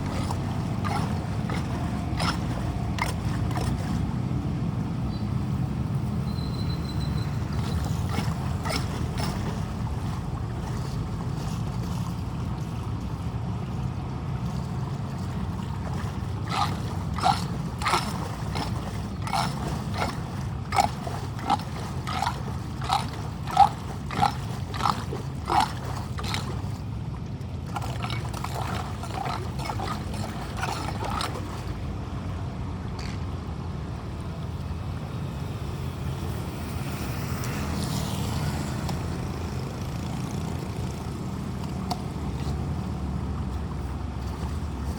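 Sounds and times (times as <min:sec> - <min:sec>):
tool scraping drain grate: 0:00.0 - 0:03.9, 0:07.6 - 0:09.6, 0:16.5 - 0:26.6.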